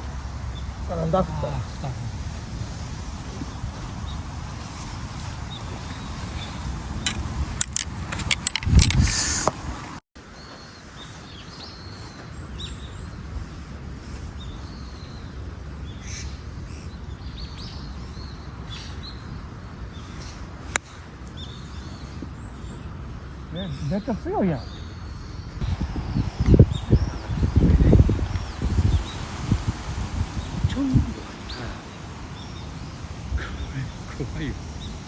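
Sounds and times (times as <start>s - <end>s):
birds chirping: 0.0s - 35.0s
outdoor hiss: 0.0s - 35.0s
wind buffeting microphone: 0.0s - 35.0s.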